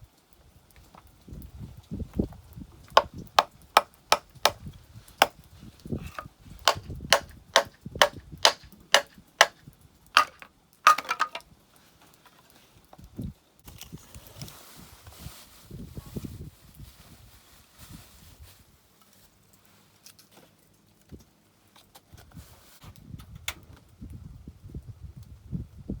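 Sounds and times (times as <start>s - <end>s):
hatchet chopping firewood: 3.0s - 5.4s, 6.0s - 9.6s, 10.2s - 11.4s.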